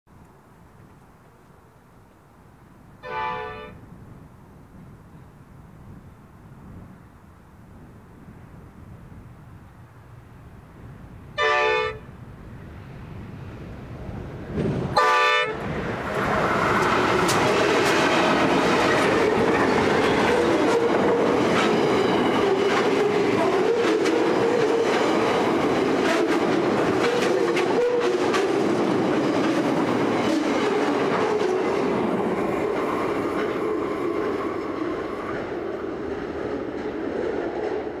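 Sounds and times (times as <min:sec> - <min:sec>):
train rumble: 0:00.1 - 0:38.0
locomotive horn blast: 0:03.0 - 0:03.8, 0:11.4 - 0:12.1, 0:15.0 - 0:15.6, 0:27.0 - 0:28.2
wheels clacking over rail joints: 0:14.1 - 0:38.0.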